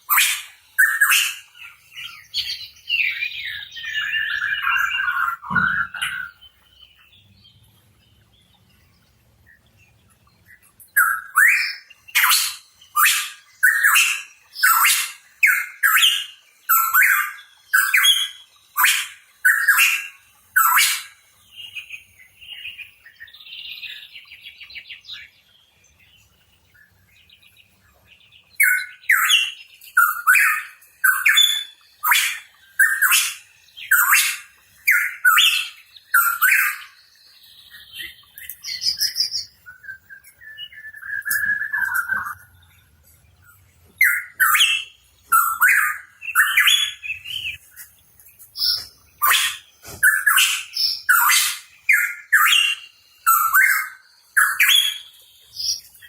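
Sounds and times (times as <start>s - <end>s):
bird warbling: 3.8s - 6.4s.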